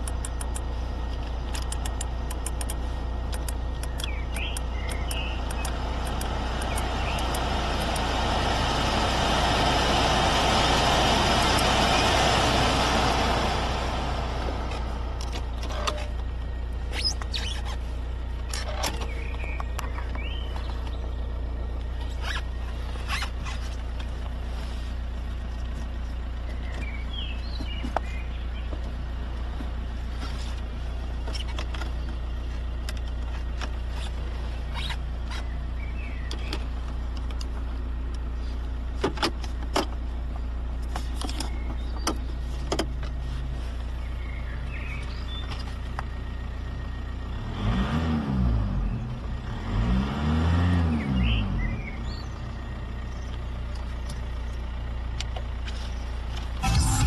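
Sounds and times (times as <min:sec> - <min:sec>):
sharp clicks: 0:00.0 - 0:08.1
low vehicle engine hum: 0:00.0 - 0:57.0
lower engine rising and falling: 0:00.0 - 0:57.0.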